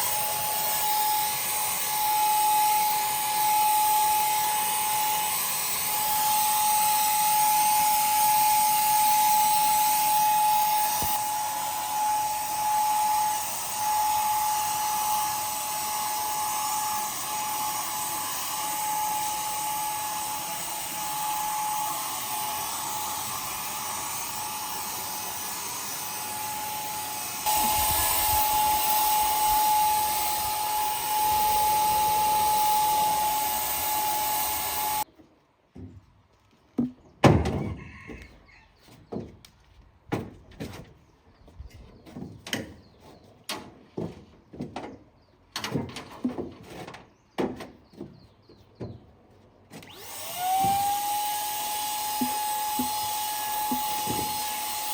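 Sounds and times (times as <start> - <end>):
power tool whining: 0.0 - 35.1, 49.8 - 54.9.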